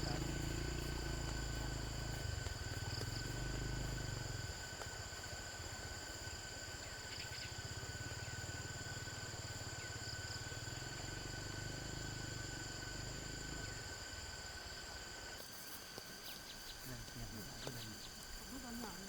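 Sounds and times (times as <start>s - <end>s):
low pulsing rumble: 0.0s - 4.5s
insects chirping: 0.0s - 19.0s.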